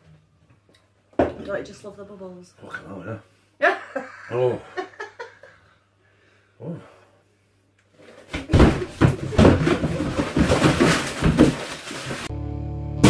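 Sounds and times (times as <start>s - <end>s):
rustling: 7.9s - 12.3s.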